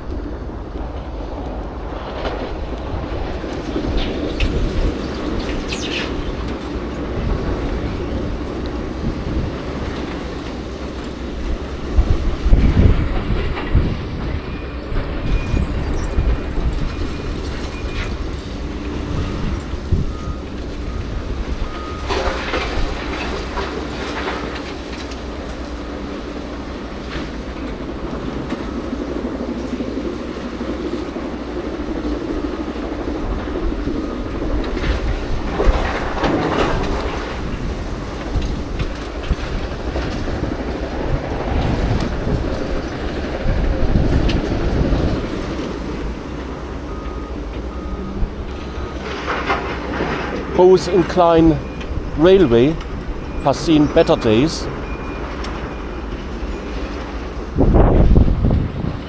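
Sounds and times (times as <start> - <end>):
train wheels clattering over rails: 0.0 - 52.2
high wheel squeals: 31.7 - 58.2.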